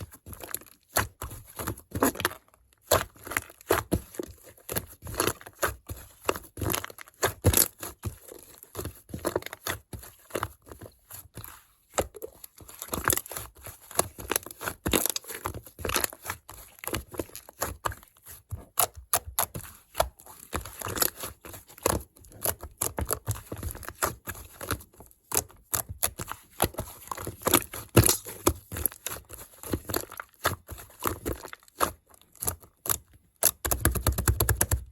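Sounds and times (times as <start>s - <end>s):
slime squishing and clicking: 18.7s - 34.9s.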